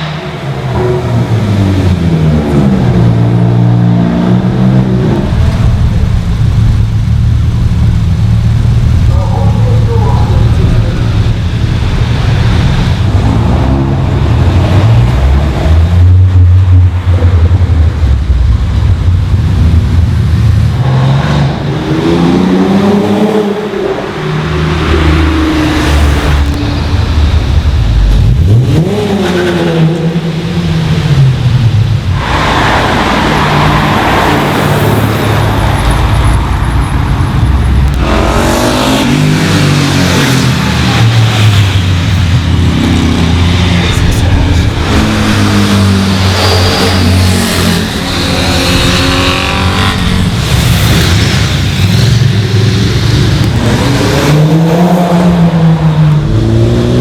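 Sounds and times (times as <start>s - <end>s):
rough loud exhaust: 0.0s - 57.0s
car engines revving past: 19.5s - 57.0s.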